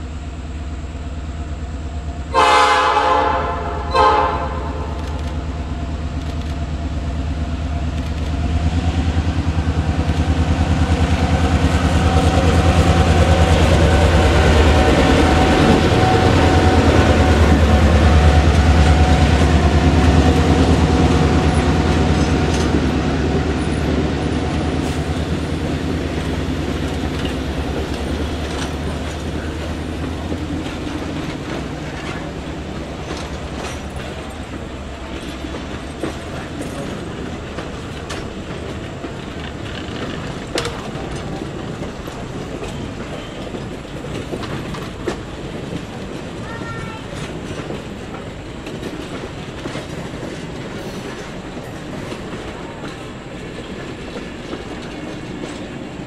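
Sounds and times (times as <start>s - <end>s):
locomotive horn blasts: 2.3s - 5.1s
diesel engine rumble: 4.6s - 42.5s
wheels clicking over rail joints: 4.8s - 56.0s.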